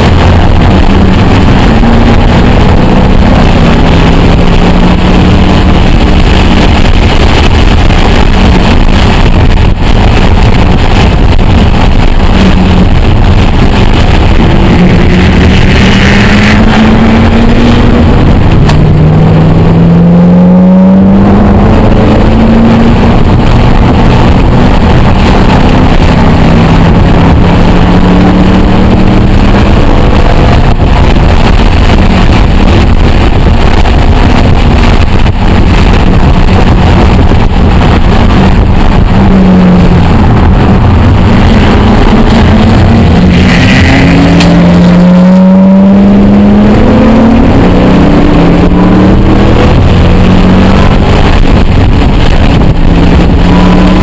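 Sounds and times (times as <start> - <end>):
car engine accelerating: 0.0 - 54.0
road and wind noise: 0.0 - 54.0.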